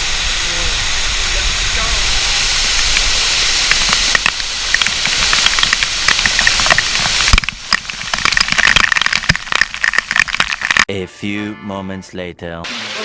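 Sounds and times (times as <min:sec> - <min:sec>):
sharp clicks and taps: 0:02.8 - 0:10.9.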